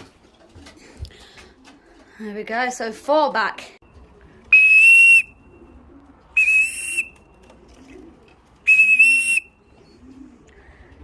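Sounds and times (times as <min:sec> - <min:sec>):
short high whistle blasts: 0:08.7 - 0:09.4.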